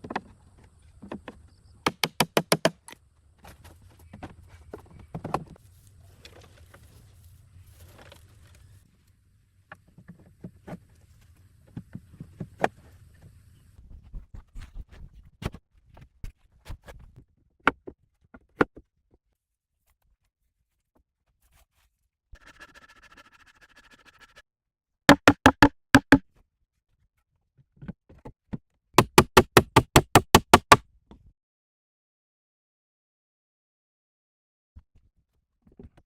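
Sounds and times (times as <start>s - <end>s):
sharp knocks: 25.1s - 26.2s.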